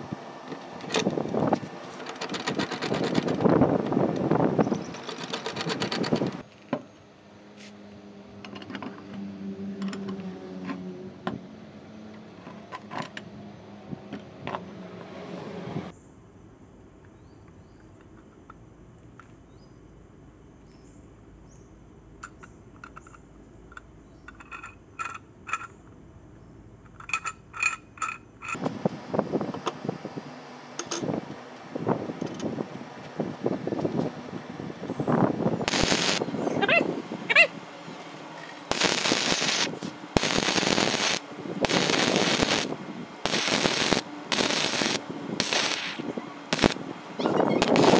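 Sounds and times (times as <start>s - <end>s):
scattered clicks: 4.9s - 6.4s
low machine hum: 28.6s - 47.9s.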